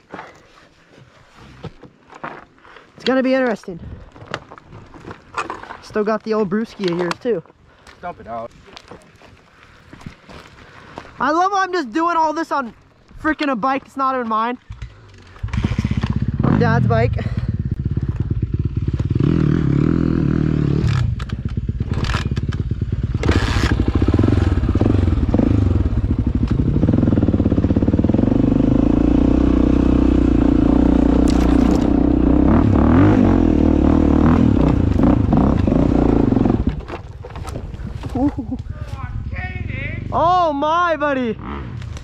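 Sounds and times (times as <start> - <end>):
bike knocking and scraping: 0.0 - 7.6, 13.4 - 17.0, 34.2 - 39.2
dirt bike engine pulling hard: 14.6 - 42.0.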